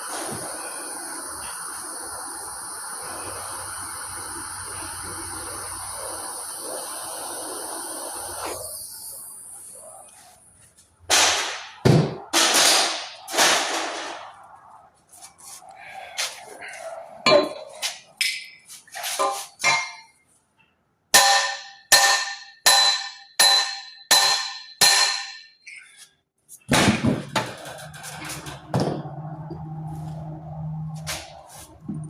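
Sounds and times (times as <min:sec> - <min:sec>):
hammer striking metal: 0:19.2 - 0:20.2, 0:21.1 - 0:25.6.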